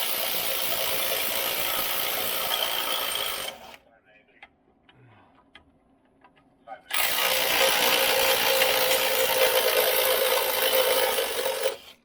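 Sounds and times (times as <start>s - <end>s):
power tool whirring: 0.0s - 3.8s, 6.9s - 12.0s.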